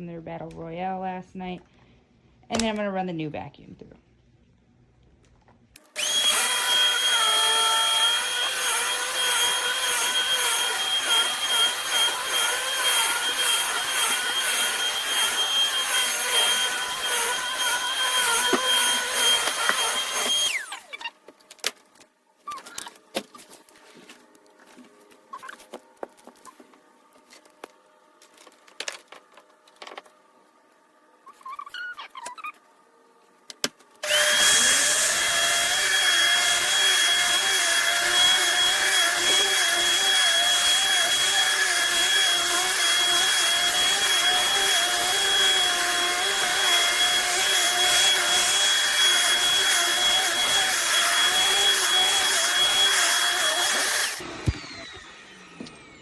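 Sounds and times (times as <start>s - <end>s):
upright vacuum cleaner running: 5.8s - 20.9s, 34.0s - 56.0s
vacuum motor spinning up: 5.8s - 21.0s, 34.0s - 56.0s.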